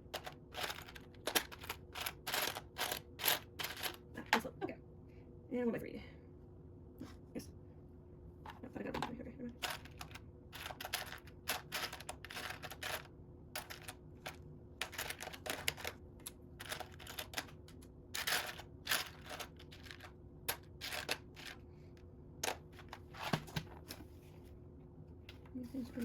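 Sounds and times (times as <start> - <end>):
plastic toy bricks clicking: 0.2 - 4.0.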